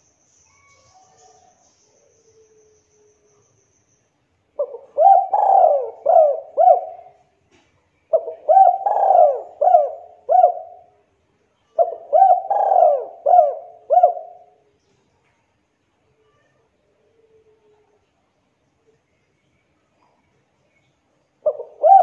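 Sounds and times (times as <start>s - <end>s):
dove cooing: 4.6s - 7.2s, 8.1s - 10.9s, 11.8s - 14.6s, 21.4s - 22.0s.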